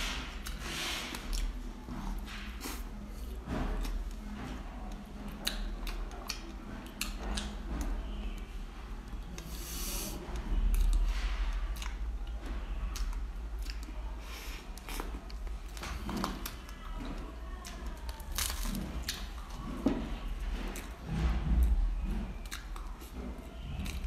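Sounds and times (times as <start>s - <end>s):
chewing with mouth clicks: 0.3s - 8.5s, 9.2s - 24.0s
crisp crackles: 17.8s - 19.3s.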